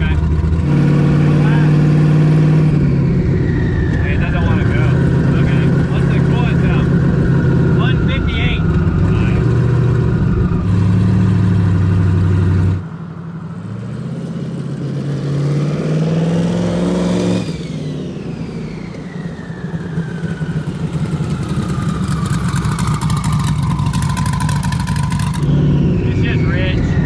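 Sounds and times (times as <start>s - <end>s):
car engine revving: 0.0s - 27.0s
turbo whine: 17.1s - 27.0s
fast rattling crackle: 21.4s - 25.5s.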